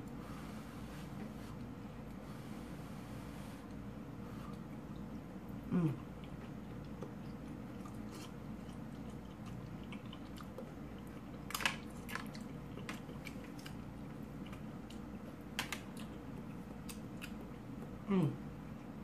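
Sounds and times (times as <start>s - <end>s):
low background hum: 0.0s - 19.0s
person chewing food: 3.6s - 18.1s.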